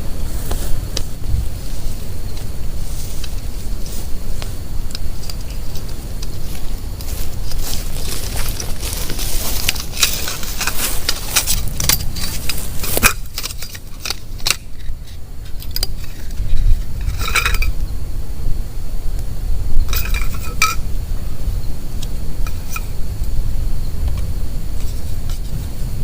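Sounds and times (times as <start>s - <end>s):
steady low rumble: 0.0s - 26.0s
metal items clinking: 5.1s - 17.8s, 19.9s - 20.8s.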